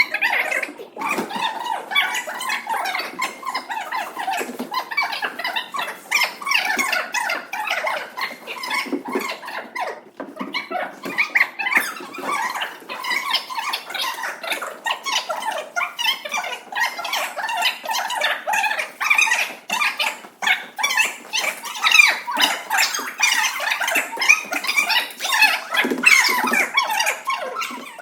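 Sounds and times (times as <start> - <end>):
children chattering and squealing: 0.0 - 28.0.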